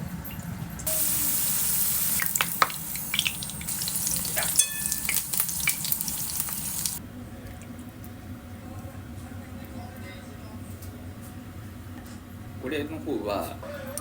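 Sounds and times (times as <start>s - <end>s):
food sizzling in a frying pan: 0.8s - 7.0s.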